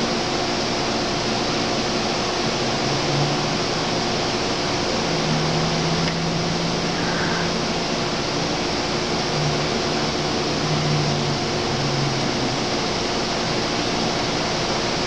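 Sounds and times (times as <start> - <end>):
train machine hiss: 3.6 - 15.0.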